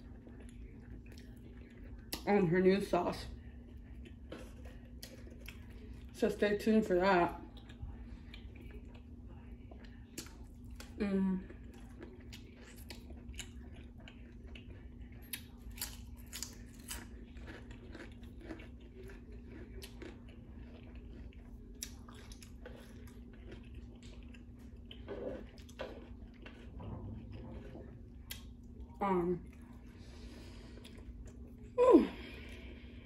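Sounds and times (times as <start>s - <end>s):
person chewing crunchy food: 0.0s - 2.2s, 3.4s - 6.2s, 7.5s - 31.8s.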